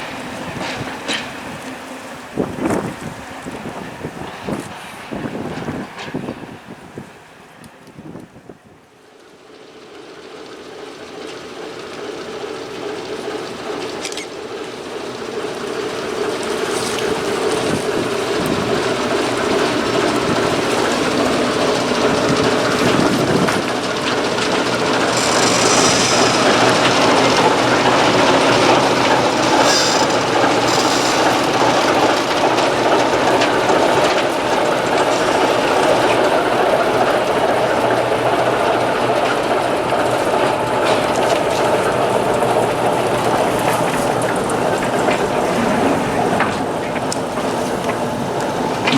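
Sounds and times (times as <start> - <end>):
diesel locomotive engine running: 0.0 - 48.9
wheel squeals: 13.0 - 35.2, 41.1 - 48.9.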